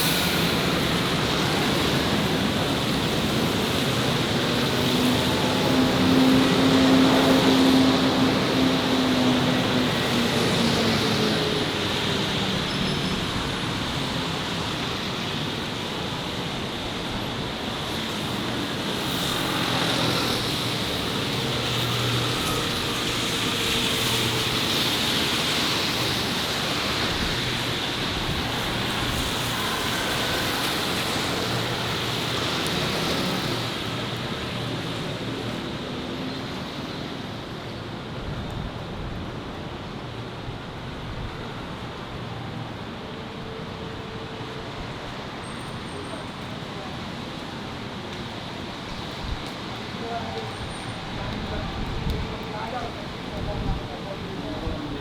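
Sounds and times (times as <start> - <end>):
motorbikes passing: 0.0 - 37.2
cars passing: 0.0 - 38.1.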